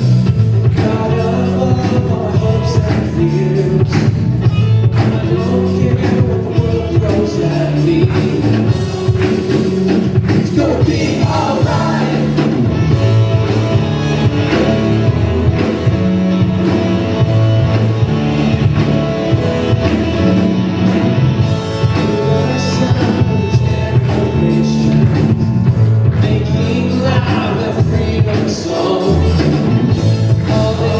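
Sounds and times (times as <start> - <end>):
bass guitar: 0.0 - 30.9
electric guitar: 0.0 - 30.9
rock band playing: 0.0 - 30.9
person singing: 0.6 - 4.0, 4.9 - 9.6, 21.8 - 30.9.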